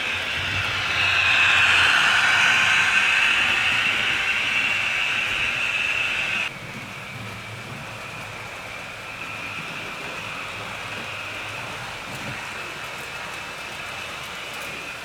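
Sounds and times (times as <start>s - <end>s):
model train whirring on rails: 0.0s - 15.0s.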